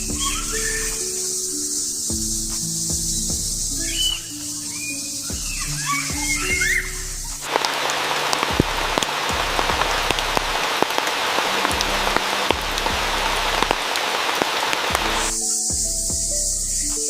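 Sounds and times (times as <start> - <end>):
soft background music: 0.0 - 17.0
heavy rain: 5.7 - 15.4.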